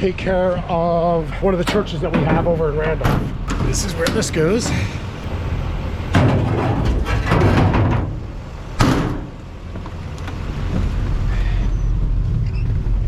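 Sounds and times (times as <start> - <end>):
low engine hum: 0.0 - 13.0
clattering knock: 6.1 - 8.2.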